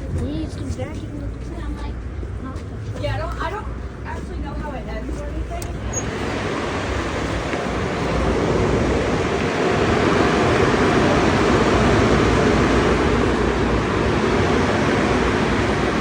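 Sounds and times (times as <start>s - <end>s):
car wash equipment rushing: 5.7s - 16.0s.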